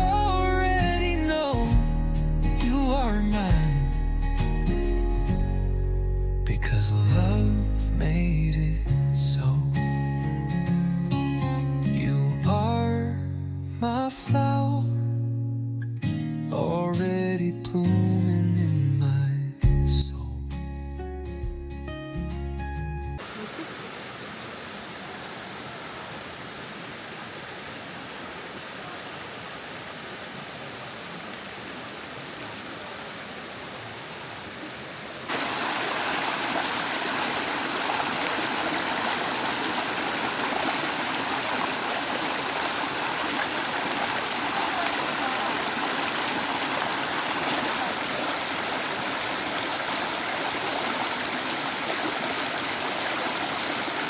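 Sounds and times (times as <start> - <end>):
stream running: 23.2 - 54.0.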